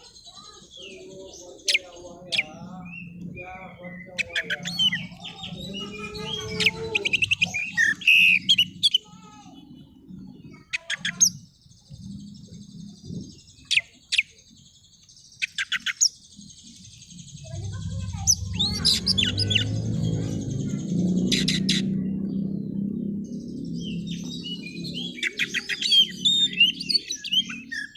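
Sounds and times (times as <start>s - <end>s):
bird singing chirps and whistles: 0.0s - 9.1s, 15.4s - 27.9s.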